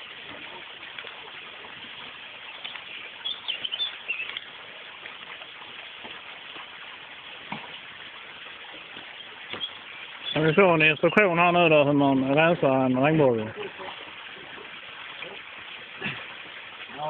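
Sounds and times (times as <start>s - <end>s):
outdoor background hiss: 0.0s - 17.0s
small bird chirping: 2.6s - 4.5s, 9.1s - 11.2s.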